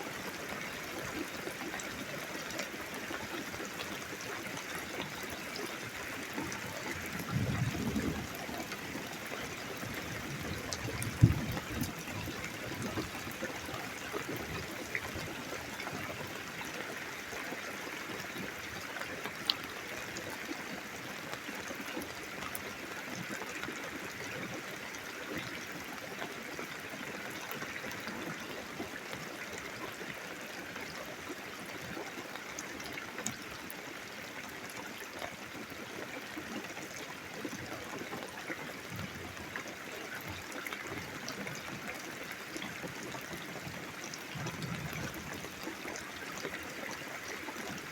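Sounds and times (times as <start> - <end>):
water trickling: 0.1 - 47.9
heavy rain: 5.1 - 16.6, 43.6 - 47.9.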